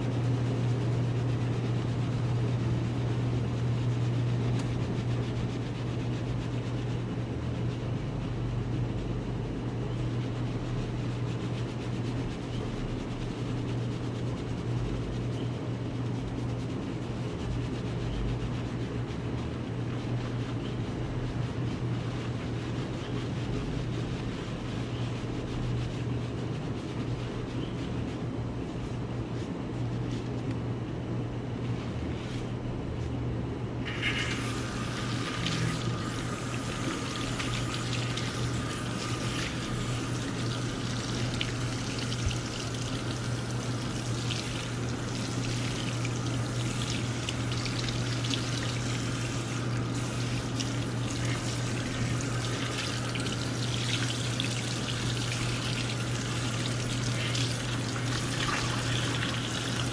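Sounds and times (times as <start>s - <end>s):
steady low hum: 0.0s - 59.9s
water running at a basin: 33.9s - 59.9s.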